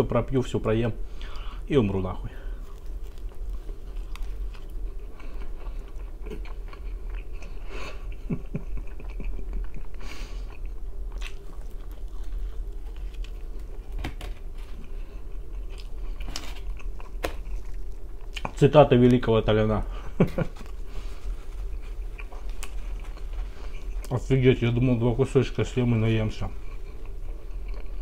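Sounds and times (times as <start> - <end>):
man chewing pizza: 1.1 - 19.3, 19.9 - 28.0.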